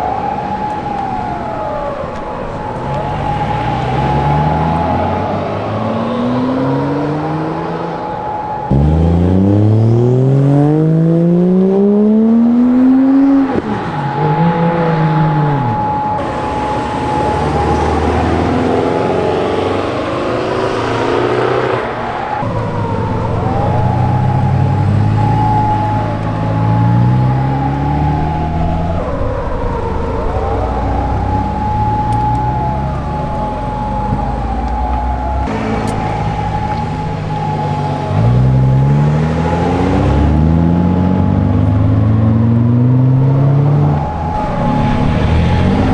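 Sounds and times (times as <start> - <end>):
car engines accelerating: 0.0 - 45.9
cars passing by: 0.0 - 45.9
steady high whine: 13.5 - 38.8, 43.9 - 45.9.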